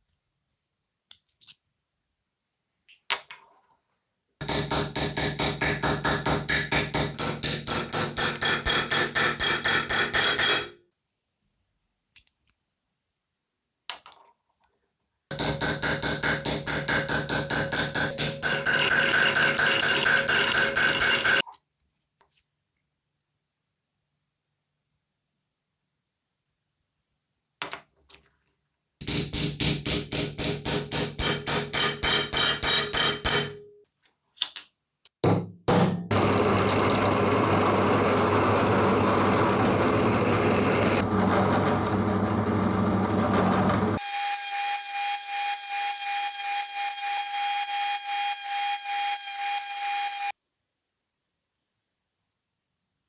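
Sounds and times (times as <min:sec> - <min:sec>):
power tool running: 0:15.3 - 0:21.4, 0:36.1 - 0:44.4.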